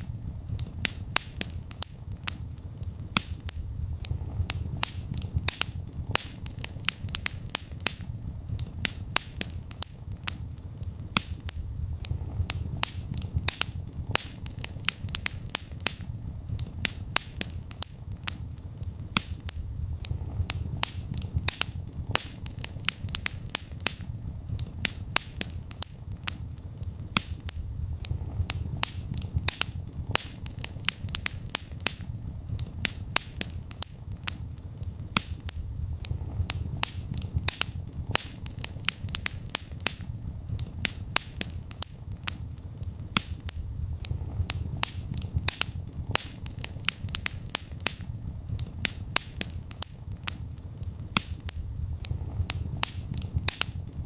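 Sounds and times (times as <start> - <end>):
low rumble of flames: 0.0 - 54.0
wood fire pops and snaps: 0.0 - 54.0.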